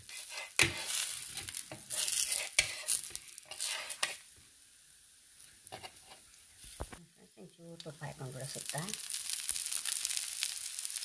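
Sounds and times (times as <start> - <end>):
metal spatula scraping a pan: 0.0 - 4.3, 5.6 - 6.4
bread sizzling in a pan: 0.0 - 11.0.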